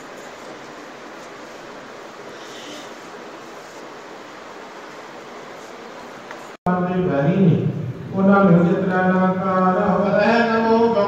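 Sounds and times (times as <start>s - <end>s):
brief high hiss: 2.2s - 3.9s.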